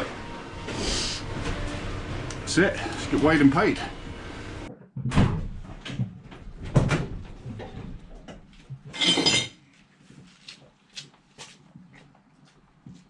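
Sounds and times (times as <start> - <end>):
knocks and clunks: 4.0 - 8.8.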